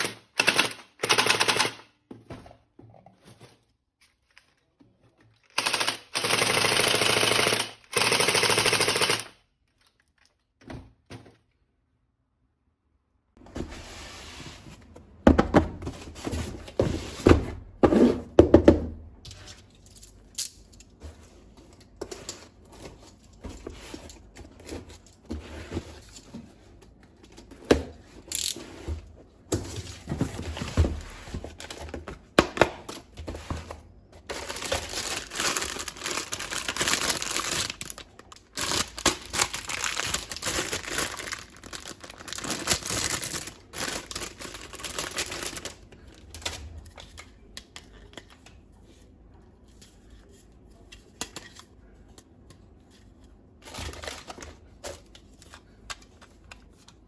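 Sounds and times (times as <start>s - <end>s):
packaging crinkling: 34.2s - 46.9s.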